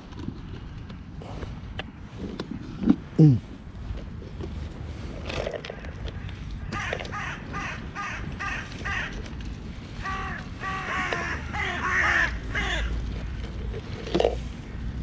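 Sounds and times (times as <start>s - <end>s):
crows cawing: 6.2s - 9.4s, 10.0s - 13.3s.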